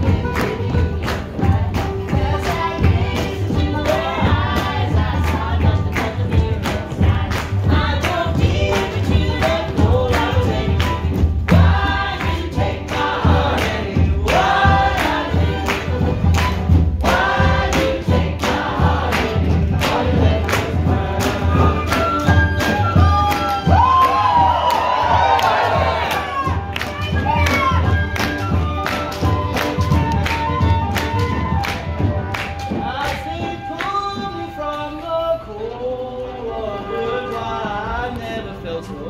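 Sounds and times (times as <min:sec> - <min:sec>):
voices singing together: 0:00.0 - 0:26.8.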